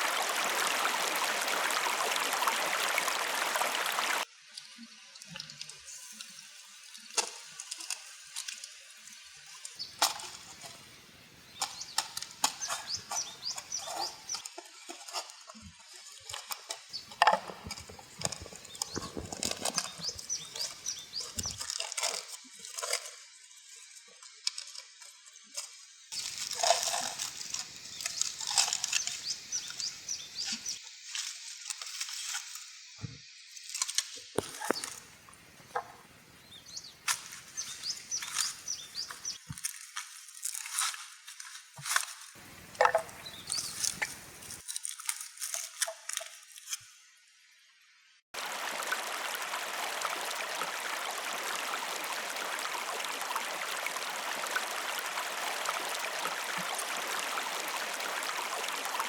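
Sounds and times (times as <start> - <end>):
river flowing: 0.0 - 4.2, 42.4 - 44.6, 48.4 - 59.0.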